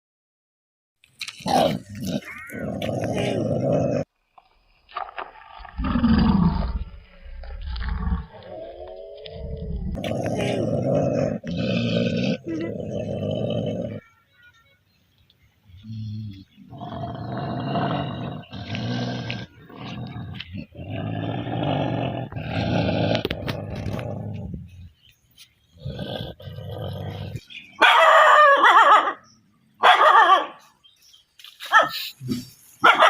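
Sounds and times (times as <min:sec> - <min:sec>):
dog growling: 0:01.5 - 0:04.1, 0:05.7 - 0:14.0, 0:15.8 - 0:24.9, 0:25.8 - 0:27.5
dog yelping: 0:27.8 - 0:29.2.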